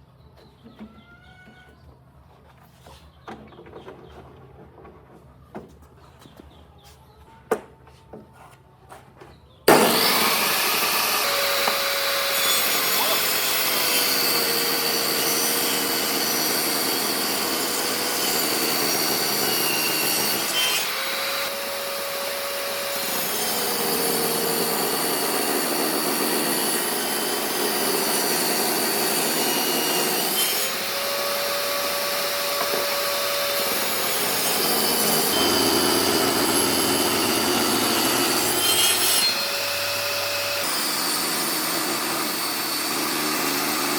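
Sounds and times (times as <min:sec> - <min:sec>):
power tool cutting wood: 0:09.7 - 0:43.9.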